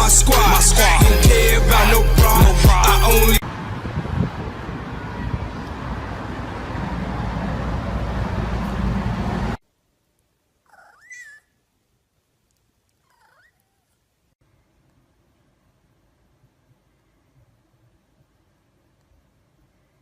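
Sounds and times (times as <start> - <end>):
steady rushing noise: 2.2 - 9.6
cat meowing: 13.1 - 13.9.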